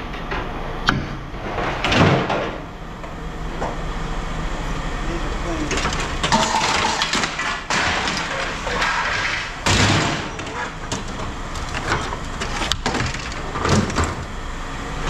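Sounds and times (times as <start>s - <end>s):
metal scrap clattering into bin: 5.7s - 11.2s.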